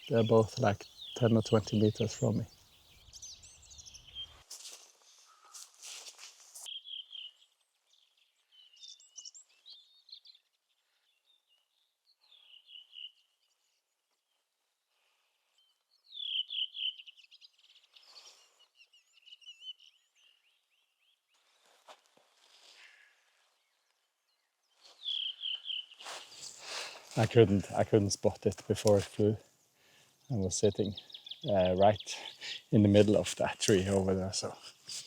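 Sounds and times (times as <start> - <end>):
songbirds singing: 0.0 - 4.4, 6.7 - 14.4, 15.5 - 21.4, 23.4 - 35.0
brief rustles: 26.0 - 27.8.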